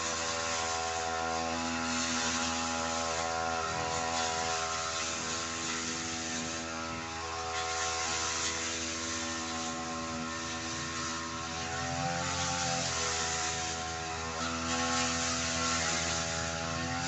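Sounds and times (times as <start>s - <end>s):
brush cutter engine running: 0.0s - 17.0s.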